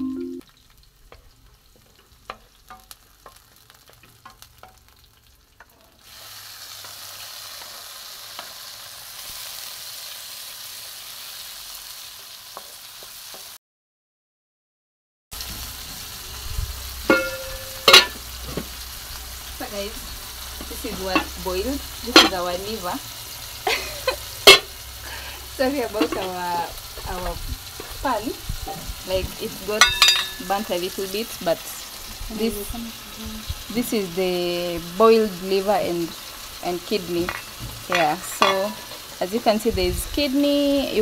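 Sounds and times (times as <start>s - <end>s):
food sizzling in a pan: 0.0s - 13.6s, 15.3s - 41.0s
utensil knocking on a pan: 17.1s - 18.7s, 22.1s - 22.5s.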